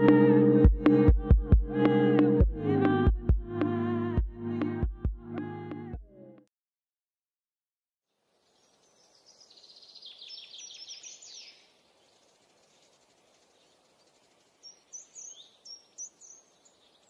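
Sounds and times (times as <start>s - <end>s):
faint steady hiss: 8.1s - 17.0s
birds singing: 8.4s - 17.0s
bird trill: 8.5s - 17.0s.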